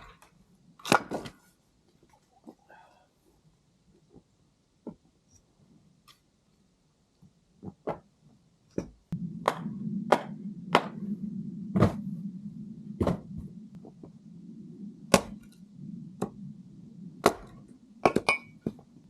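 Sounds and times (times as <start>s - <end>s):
steady low hum: 8.9s - 19.0s
firewood cracking strikes: 15.1s - 15.5s.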